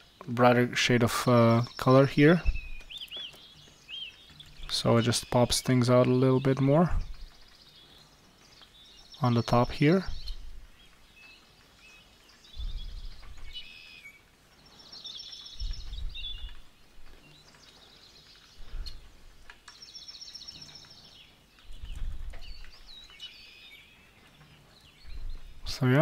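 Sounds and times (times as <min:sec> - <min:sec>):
small bird singing trilled phrases: 0:00.0 - 0:26.0
brief low rumbles: 0:12.6 - 0:13.5.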